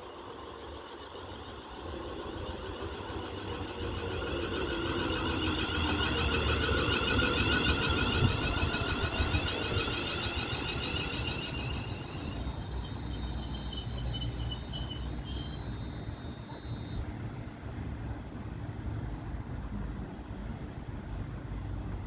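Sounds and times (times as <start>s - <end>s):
electric train rushing: 0.0s - 18.4s
train rumble and whine: 0.0s - 22.0s.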